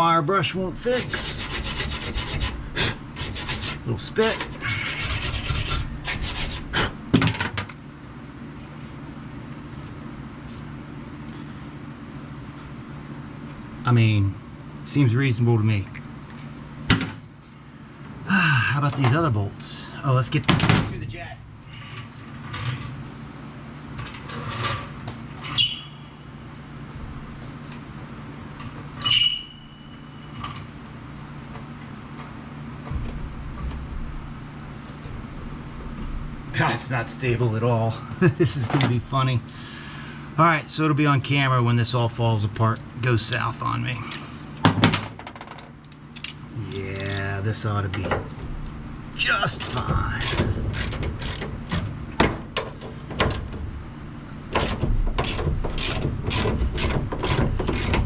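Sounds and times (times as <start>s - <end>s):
steady low hum: 0.0s - 58.0s
ratchet wrench clicking: 47.0s - 47.3s, 49.5s - 51.8s, 54.6s - 58.0s.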